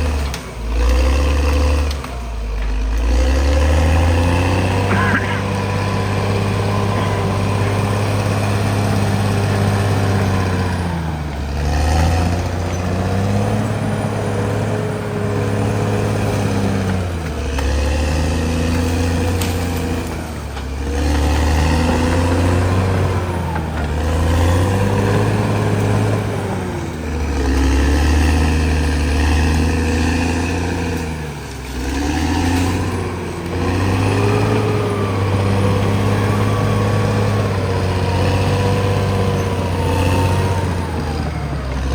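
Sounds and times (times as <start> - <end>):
bulldozer diesel engine labouring: 0.0 - 41.9.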